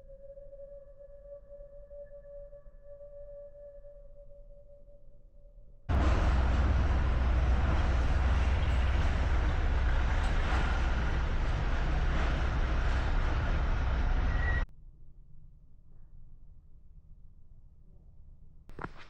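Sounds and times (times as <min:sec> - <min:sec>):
vehicle running rumble: 0:05.9 - 0:14.7.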